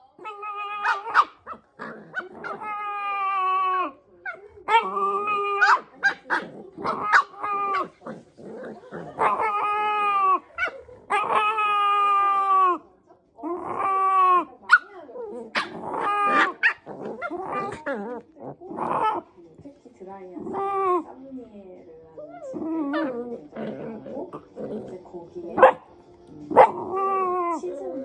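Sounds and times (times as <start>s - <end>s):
dog yelps: 0.2s - 3.3s, 5.6s - 7.9s.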